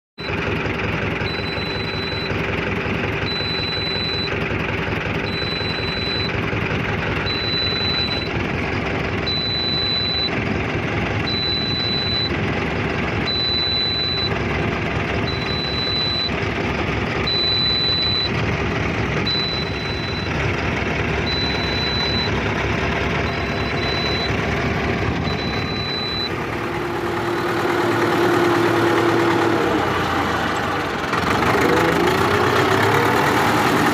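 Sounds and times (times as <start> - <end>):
tractor diesel engine running: 0.2 - 33.9
high-pitched beep: 1.2 - 2.4, 3.2 - 4.3, 5.3 - 6.3, 7.2 - 8.4, 9.2 - 10.4, 11.2 - 12.4, 13.3 - 14.3, 15.2 - 16.4, 17.2 - 18.4, 19.2 - 20.4, 21.2 - 22.4, 23.1 - 24.4, 25.2 - 30.2.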